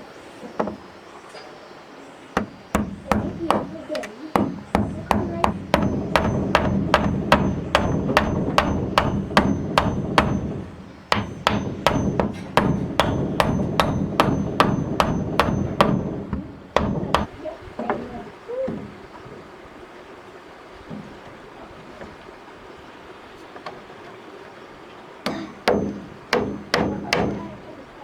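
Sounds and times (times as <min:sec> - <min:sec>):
hand hammer blows: 0:02.4 - 0:17.3.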